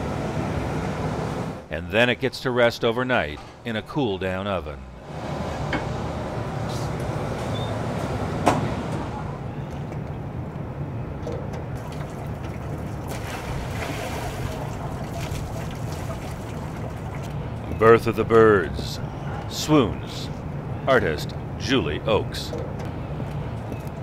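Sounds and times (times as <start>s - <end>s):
furnaces roaring: 0.0s - 24.0s.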